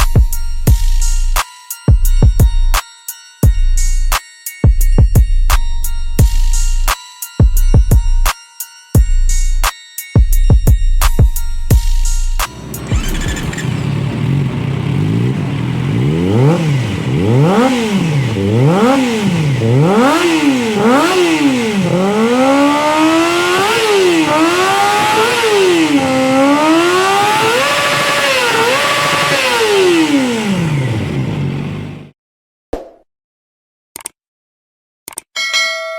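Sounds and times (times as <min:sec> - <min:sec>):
motorcycle engine revving: 0:12.4 - 0:32.1.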